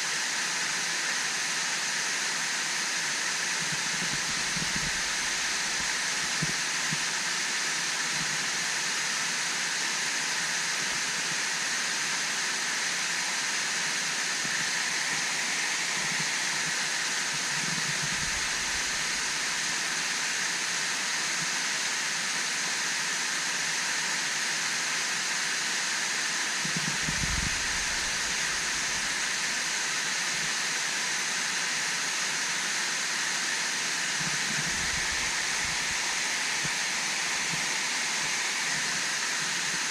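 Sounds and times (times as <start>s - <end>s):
waterfall rushing: 26.9s - 30.4s, 33.0s - 39.9s.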